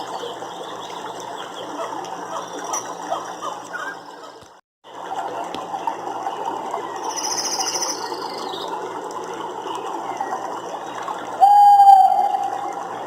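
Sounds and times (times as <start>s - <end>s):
loud steady-pitched call: 11.4s - 12.6s.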